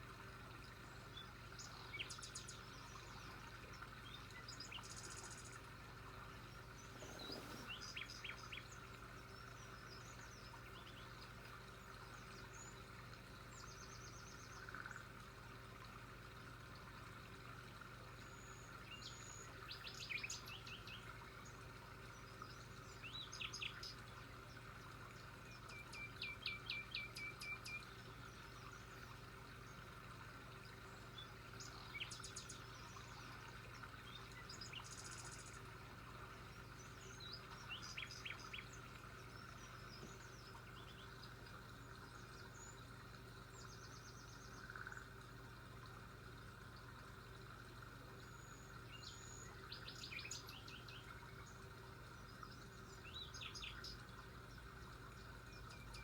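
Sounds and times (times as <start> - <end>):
faint background hum: 0.0 - 56.0
birds chirping: 6.7 - 8.7.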